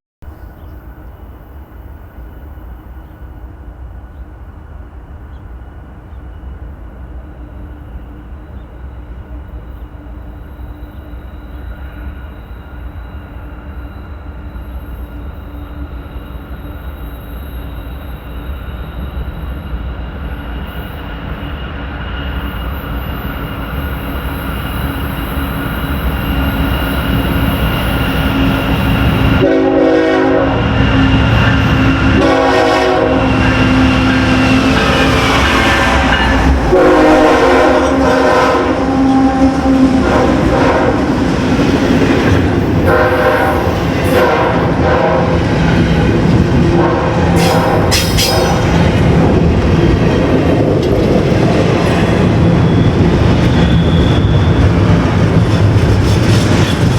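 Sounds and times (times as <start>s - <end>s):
train rumble: 0.2s - 56.9s
train horn: 25.8s - 49.2s.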